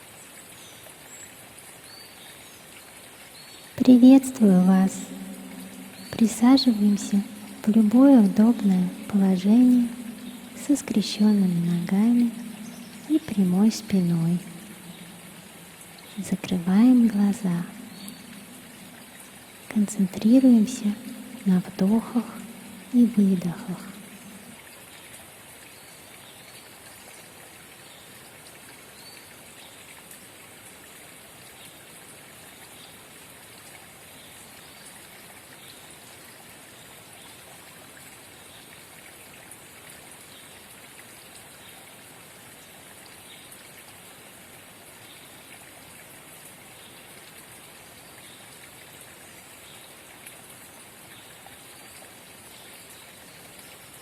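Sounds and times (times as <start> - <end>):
spring water trickling and splashing: 0.0 - 54.0.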